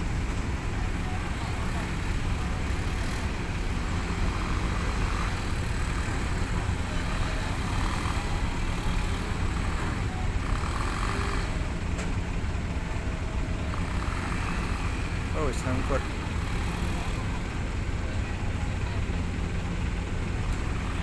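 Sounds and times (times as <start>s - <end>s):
diesel engine rumbling: 0.0s - 21.0s.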